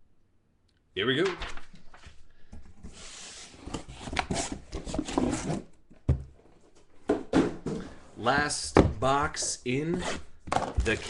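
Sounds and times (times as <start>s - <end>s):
packaging rustling and scraping: 2.8s - 5.8s.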